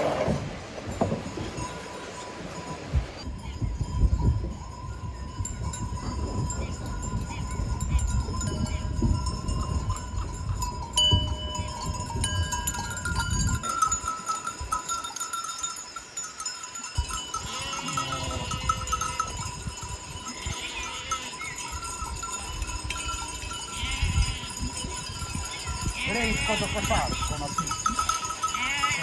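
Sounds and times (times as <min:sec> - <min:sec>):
sheep bells clanking: 0:00.8 - 0:29.0
sheep bleating: 0:17.4 - 0:19.4, 0:20.3 - 0:21.5, 0:26.0 - 0:27.7, 0:28.4 - 0:29.0.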